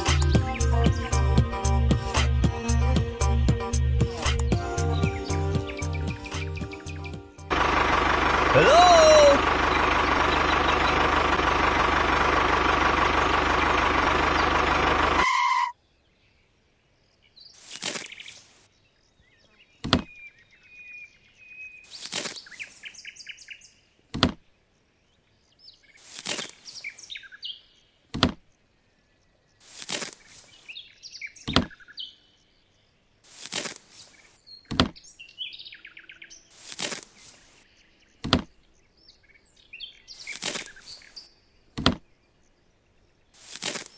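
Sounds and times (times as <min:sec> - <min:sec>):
faint bird chirps: 0:15.2 - 0:33.2.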